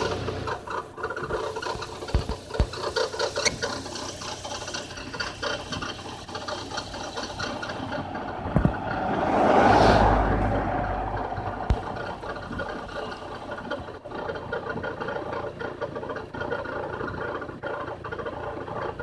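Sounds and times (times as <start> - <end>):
car rattling and ticking: 0.0 - 19.0
rush with low rumble: 7.3 - 13.8.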